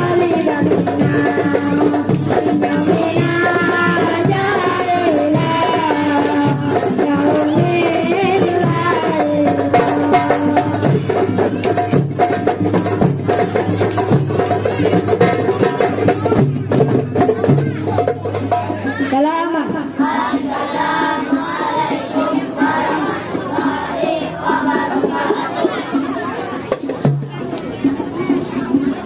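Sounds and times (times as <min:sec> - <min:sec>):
devotional singing: 0:00.0 - 0:11.5, 0:19.8 - 0:26.0
hand drums beating: 0:00.0 - 0:29.0.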